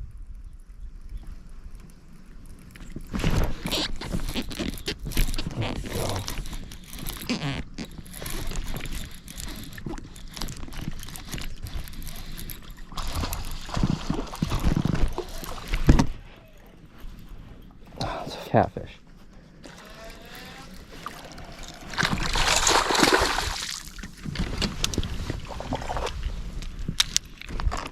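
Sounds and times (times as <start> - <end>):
knocks and clatter on kayak: 3.0 - 16.2
water splashing: 12.8 - 16.1, 20.9 - 26.3.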